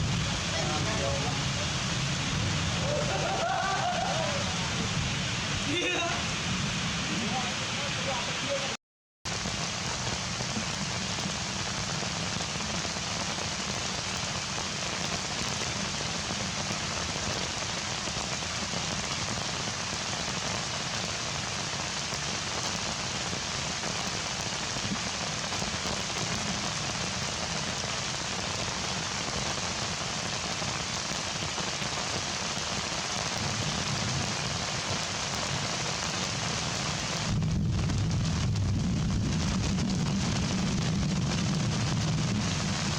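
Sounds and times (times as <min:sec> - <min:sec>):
low rumble: 0:00.0 - 0:07.1, 0:37.2 - 0:42.9
heavy rain falling: 0:00.0 - 0:42.9.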